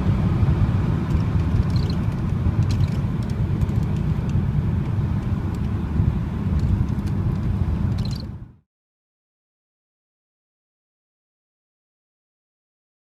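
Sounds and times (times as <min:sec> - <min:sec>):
car engine and road rumble: 0:00.0 - 0:08.6.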